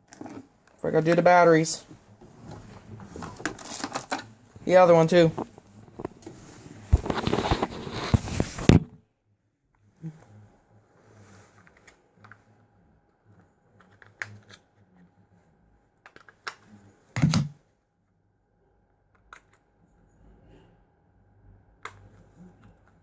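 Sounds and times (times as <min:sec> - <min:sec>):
faint steady hum: 0:00.0 - 0:23.0
object thump: 0:17.2 - 0:17.6.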